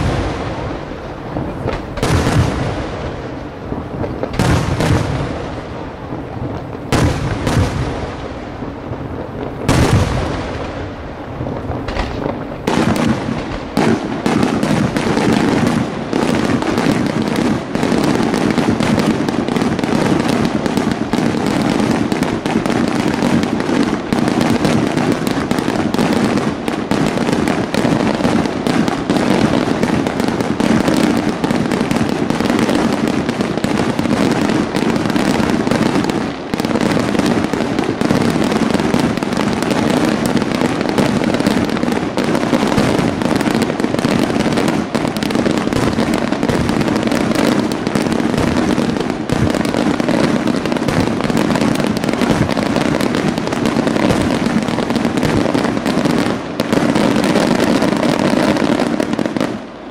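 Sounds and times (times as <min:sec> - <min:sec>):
firework bangs and crackling: 0:00.0 - 0:59.9.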